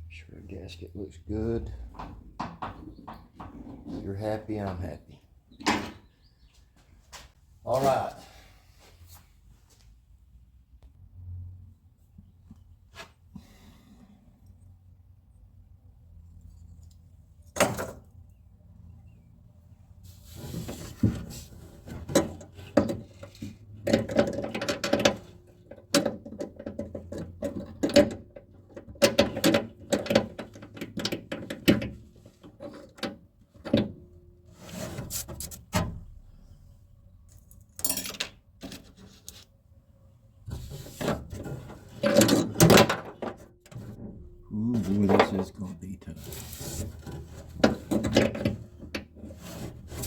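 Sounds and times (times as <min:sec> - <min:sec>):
metal tools clicking and knocking: 0:37.3 - 0:38.4.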